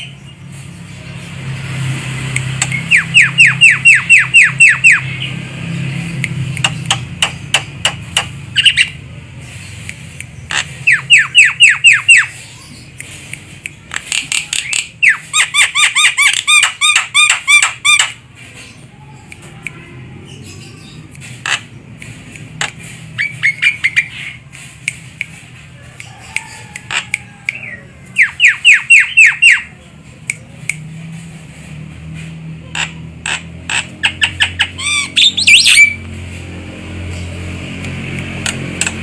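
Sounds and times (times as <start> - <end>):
sharp clicks: 2.2 - 11.7, 12.8 - 18.6, 21.1 - 28.7, 37.8 - 39.0.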